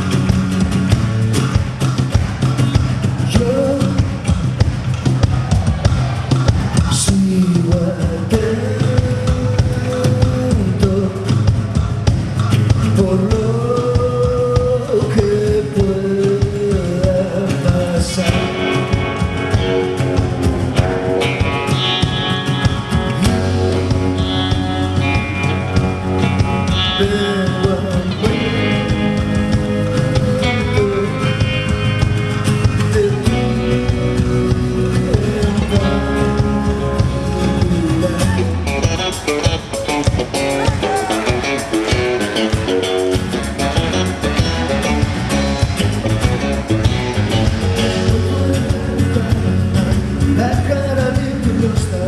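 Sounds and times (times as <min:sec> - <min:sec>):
lead guitar: 0:00.0 - 0:52.0
live band playing: 0:00.0 - 0:52.0.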